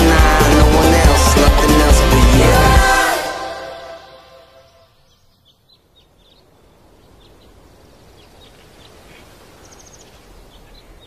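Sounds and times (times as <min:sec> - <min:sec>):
small birds chirping: 0:04.6 - 0:11.0.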